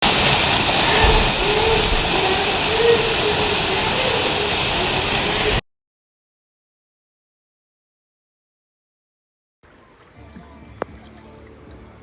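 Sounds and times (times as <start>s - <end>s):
waterfall rushing: 0.0s - 5.6s.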